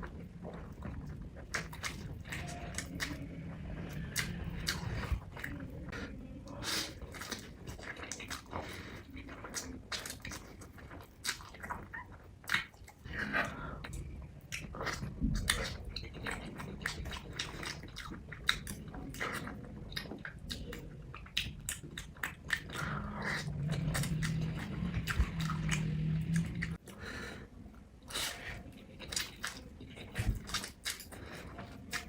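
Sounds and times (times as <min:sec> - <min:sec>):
low steady hum: 0:00.0 - 0:32.0
chewing paper: 0:14.5 - 0:26.8.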